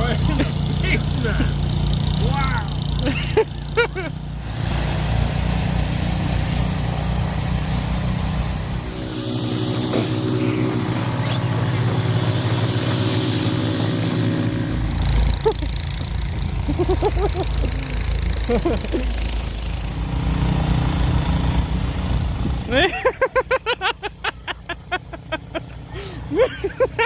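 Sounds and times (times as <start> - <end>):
engine running: 0.0 - 27.0.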